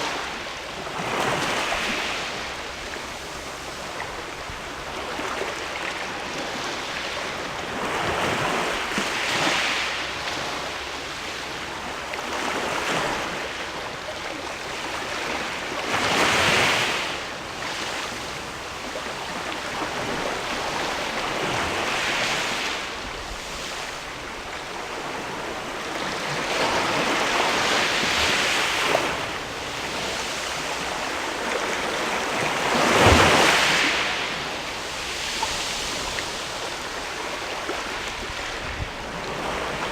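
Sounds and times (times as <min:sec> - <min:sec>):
sea waves on rocky shore: 0:00.0 - 0:39.9.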